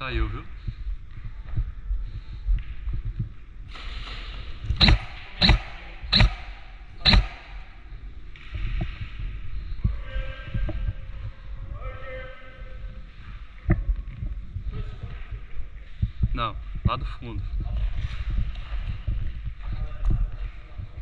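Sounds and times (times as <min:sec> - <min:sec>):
airsoft gun shots: 0:04.8 - 0:07.7.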